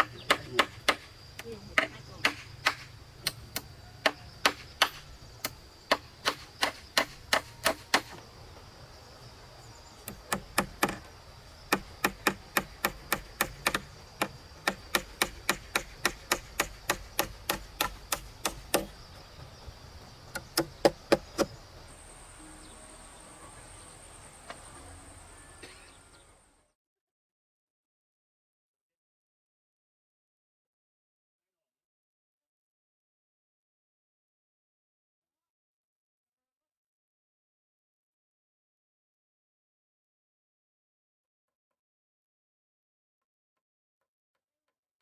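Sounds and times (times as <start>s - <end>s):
hand tool striking wood: 0.0s - 8.2s, 10.0s - 19.5s, 20.3s - 21.6s.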